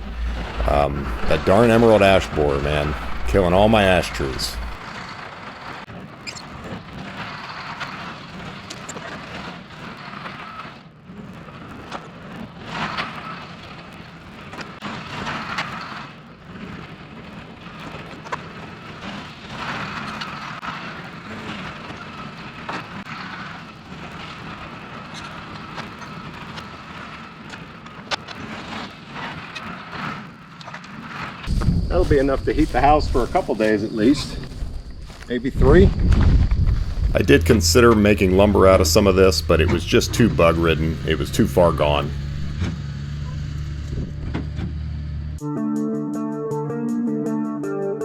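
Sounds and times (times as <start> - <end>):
heavy equipment engine running: 0.0 - 4.9, 36.6 - 45.4.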